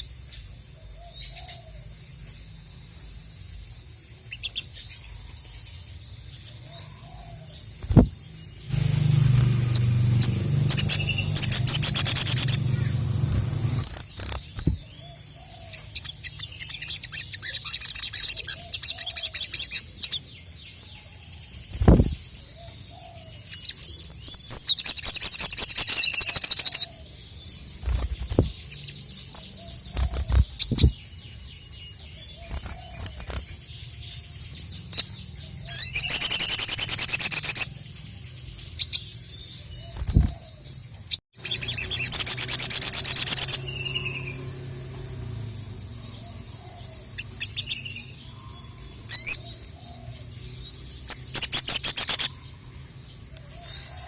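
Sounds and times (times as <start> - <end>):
low thumps: 7.8 - 13.9
short high bird chirps: 7.8 - 14.8
bird fast high trilling song: 7.8 - 20.2, 23.5 - 26.9, 34.8 - 37.8, 41.4 - 44.6.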